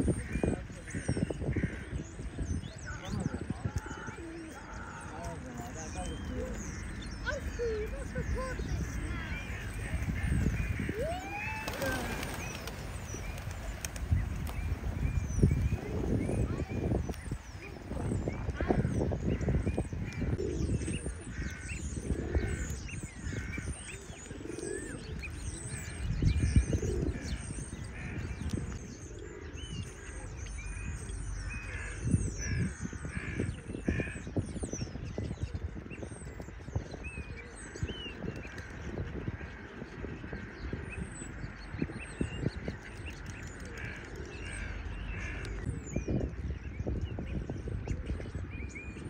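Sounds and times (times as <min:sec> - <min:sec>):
pond birds harsh calls: 0:00.0 - 0:34.6, 0:37.0 - 0:46.8
small birds chirping: 0:00.0 - 0:49.0
wind rumbling on microphone: 0:00.0 - 0:49.0.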